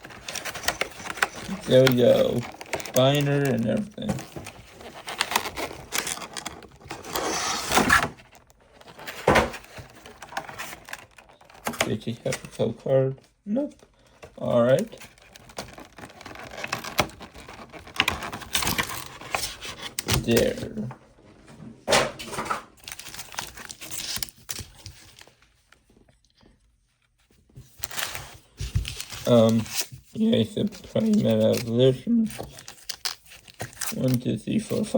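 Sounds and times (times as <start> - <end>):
rustling scrape: 0.0 - 11.8, 14.6 - 20.0
packaging clicks: 0.0 - 12.7, 14.0 - 20.7, 22.8 - 25.3, 28.8 - 34.9.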